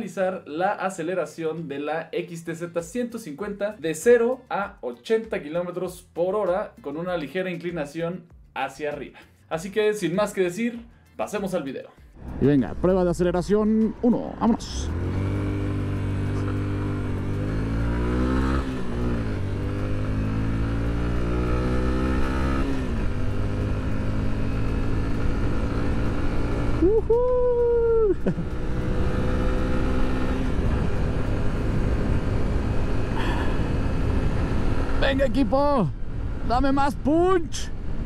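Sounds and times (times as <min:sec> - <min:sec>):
motorcycle engine accelerating: 0:12.2 - 0:38.0
wind and road noise: 0:12.2 - 0:38.0.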